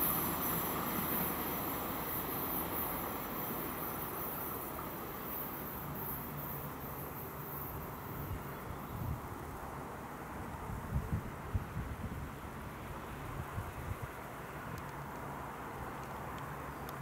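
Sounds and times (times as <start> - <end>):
insects chirring: 0.0 - 9.9
train rumble: 0.0 - 17.0.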